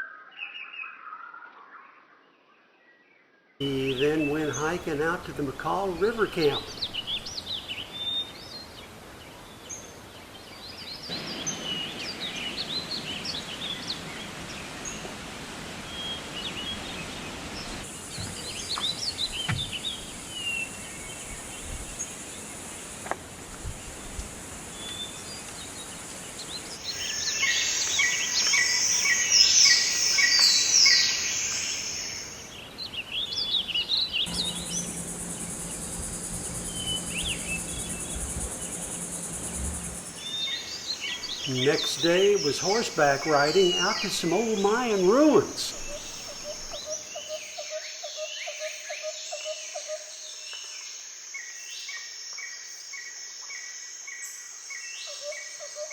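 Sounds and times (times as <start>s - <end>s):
birds chirping and calling: 3.6s - 8.7s, 26.2s - 47.8s.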